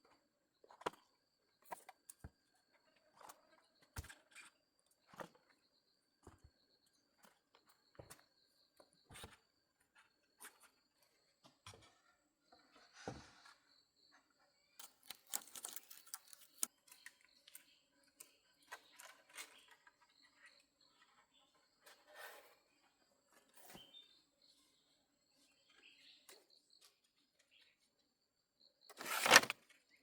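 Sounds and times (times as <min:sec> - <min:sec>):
scratchy scraping: 0:15.0 - 0:16.7, 0:29.0 - 0:29.5.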